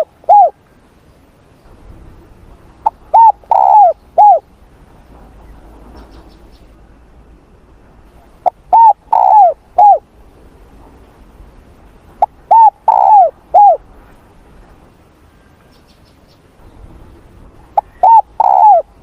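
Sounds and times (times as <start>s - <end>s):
dove cooing: 0.0s - 0.6s, 2.8s - 4.5s, 8.4s - 10.1s, 12.2s - 13.9s, 17.7s - 19.0s.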